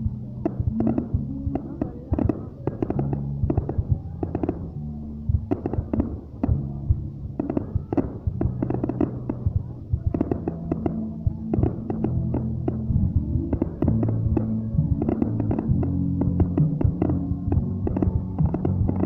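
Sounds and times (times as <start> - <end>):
fireworks bangs and crackles: 0.0 - 19.0
low droning background: 0.0 - 19.0.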